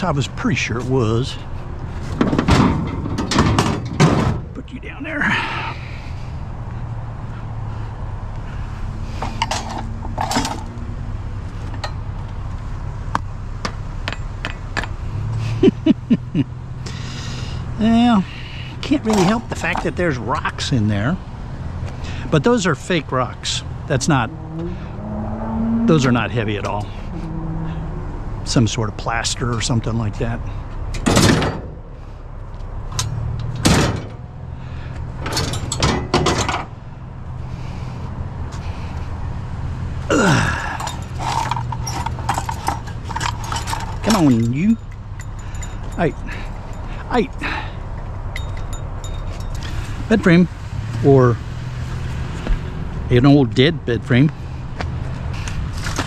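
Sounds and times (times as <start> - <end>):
hard knocks and clatters: 2.1 - 4.6, 31.0 - 31.8, 33.0 - 34.2, 35.2 - 36.7
metal scraping: 23.9 - 28.8
scrap metal clinking: 40.3 - 47.0, 48.3 - 50.0.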